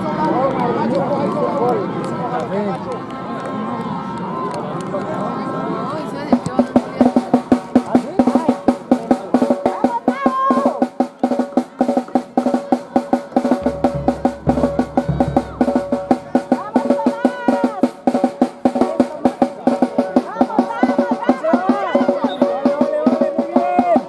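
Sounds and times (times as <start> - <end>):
drum beaten in fast rhythm: 6.3 - 24.0
steady held tone: 13.6 - 16.9.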